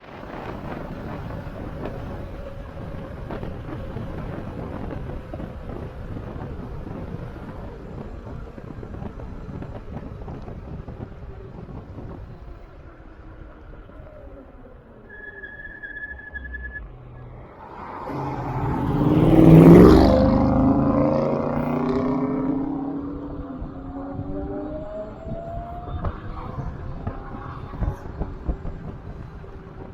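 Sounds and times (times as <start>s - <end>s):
wind on microphone: 0.0s - 12.8s, 17.3s - 29.9s
road and tyre noise: 0.0s - 29.9s.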